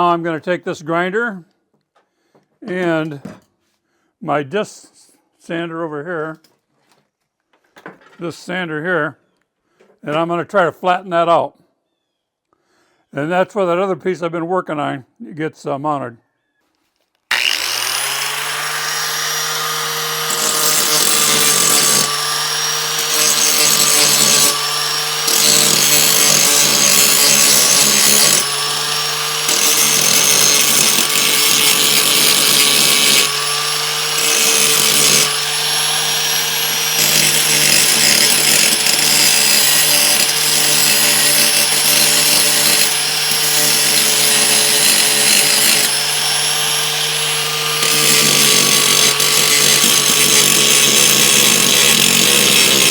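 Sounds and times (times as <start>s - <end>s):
electric disc sander running: 17.3s - 52.9s
harsh grinding of steel: 17.3s - 52.9s.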